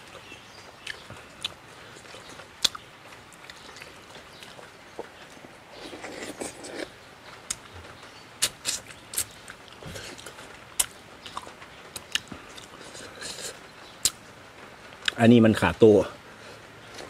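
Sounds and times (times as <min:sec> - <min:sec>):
wet chewing and lip-smacking: 0:00.2 - 0:06.9, 0:08.4 - 0:14.2.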